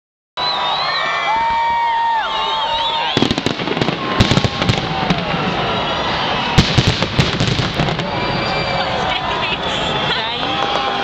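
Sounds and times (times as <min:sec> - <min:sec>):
fireworks whistling: 0:02.2 - 0:11.0
fireworks bangs and crackles: 0:03.0 - 0:11.0.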